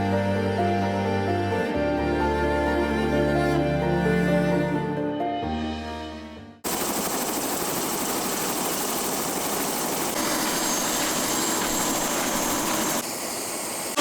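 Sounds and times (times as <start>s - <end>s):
helicopter turbine and rotor noise: 6.6s - 14.0s.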